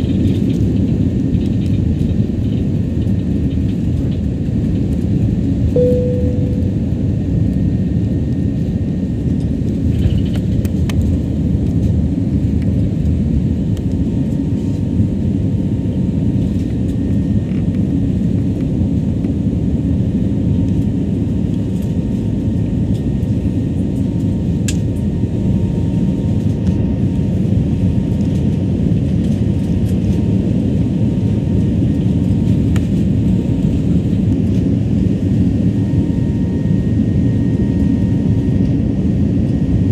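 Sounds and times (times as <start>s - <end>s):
jet airliner cabin noise: 0.0s - 39.9s
short single tone: 5.8s - 7.2s.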